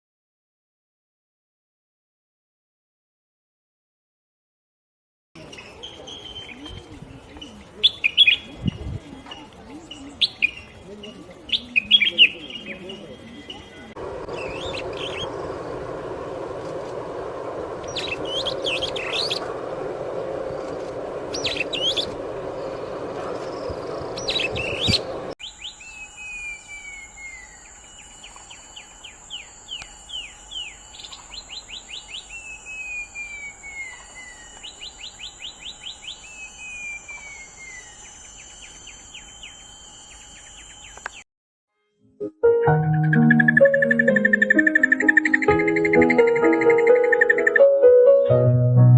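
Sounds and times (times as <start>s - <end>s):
songbirds chirping: 5.4s - 41.2s, 43.0s - 47.8s
bird whistling and trilling: 14.4s - 15.4s, 17.8s - 19.5s, 21.3s - 22.2s, 23.6s - 40.9s, 43.1s - 47.7s.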